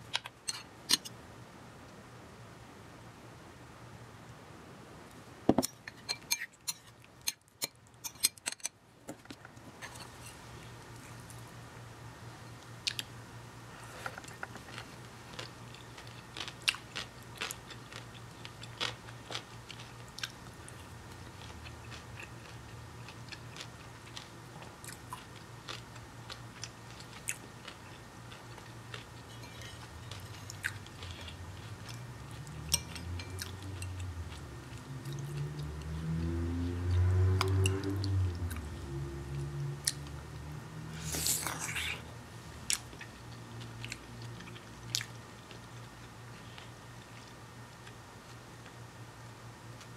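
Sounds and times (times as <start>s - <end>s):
chewing crunchy cucumber: 14.2s - 48.8s.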